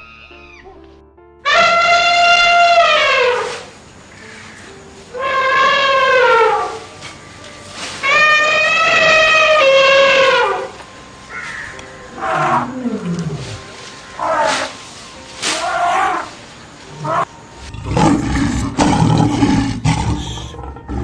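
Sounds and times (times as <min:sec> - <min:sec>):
big cat roaring: 0:12.1 - 0:13.6, 0:16.9 - 0:21.0
low rumbling growl: 0:17.6 - 0:21.0.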